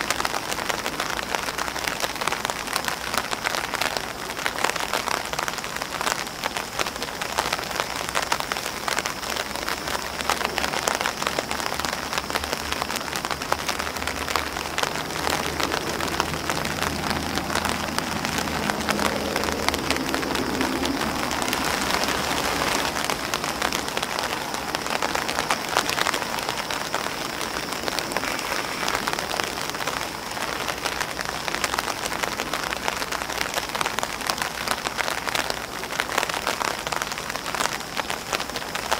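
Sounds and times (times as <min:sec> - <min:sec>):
rain pattering on grass and umbrella: 0:00.0 - 0:38.9.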